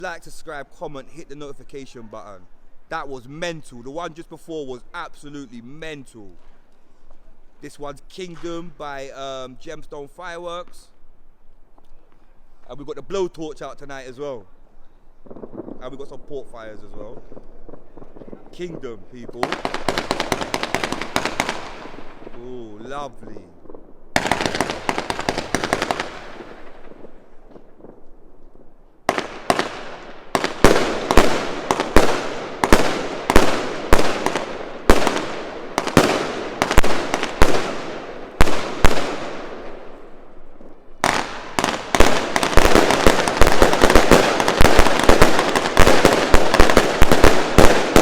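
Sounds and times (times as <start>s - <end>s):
firework crackling: 15.0s - 48.0s
firework bangs: 15.2s - 48.0s.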